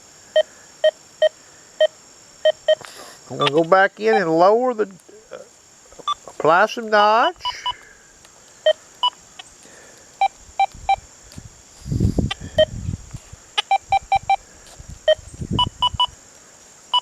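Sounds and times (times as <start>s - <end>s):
metal detector beeps: 1.2s - 2.8s, 3.4s - 4.3s, 7.3s - 7.8s, 13.6s - 14.4s, 15.1s - 16.1s.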